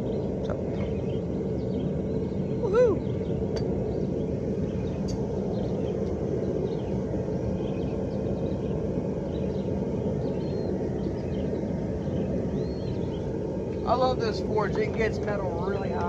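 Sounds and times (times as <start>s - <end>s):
faint bird chirps: 0.0s - 15.9s.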